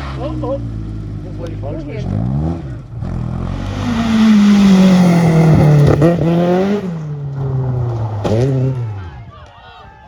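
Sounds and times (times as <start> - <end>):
rally car engine passing: 2.2 - 8.8
tyres hissing on road: 3.5 - 6.8.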